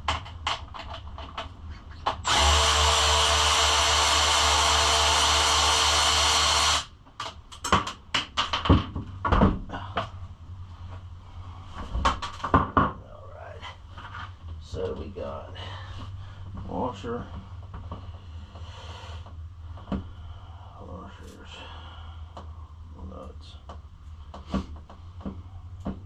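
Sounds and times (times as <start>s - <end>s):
cordless drill running: 2.2s - 6.9s.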